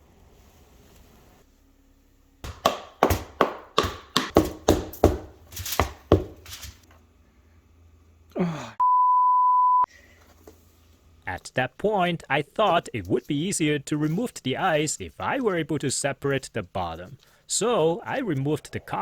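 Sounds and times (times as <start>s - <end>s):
sharp knocks on wood: 2.4s - 6.4s.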